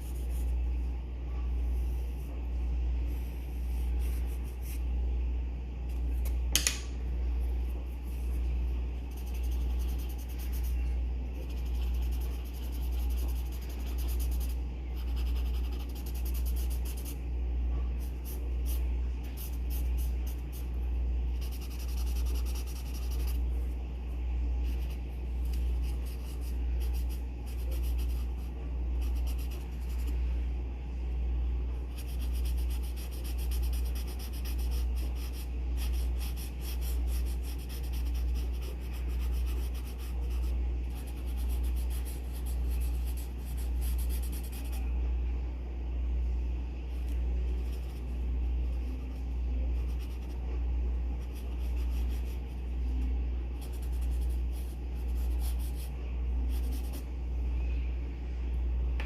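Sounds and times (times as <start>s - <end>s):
low pulsing hum: 0.0s - 59.0s
pencil scratching on paper: 3.1s - 4.9s, 8.0s - 17.2s, 18.0s - 23.7s, 24.6s - 30.2s, 31.9s - 44.8s, 46.9s - 50.5s, 51.2s - 57.0s.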